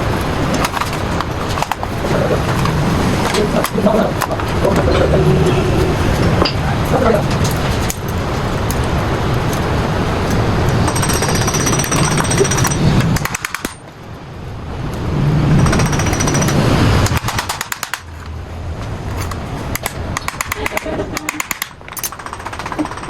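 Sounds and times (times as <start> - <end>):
power tool hammering metal: 10.8 - 13.8, 15.6 - 18.1
rapid rattle: 15.6 - 18.2, 21.3 - 23.0.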